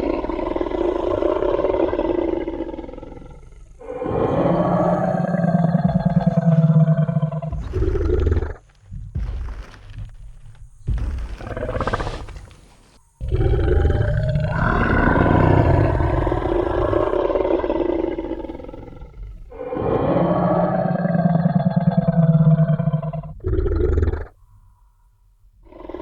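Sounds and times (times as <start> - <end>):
long deep dinosaur roar: 0.0 - 8.6, 13.2 - 24.3
dinosaur growl: 0.0 - 8.7, 10.9 - 24.4.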